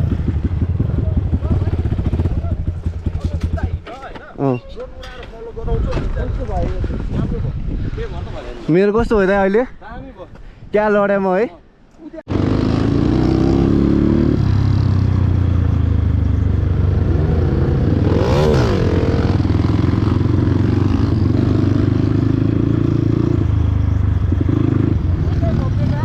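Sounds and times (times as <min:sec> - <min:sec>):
dirt bike engine running: 0:00.0 - 0:04.0.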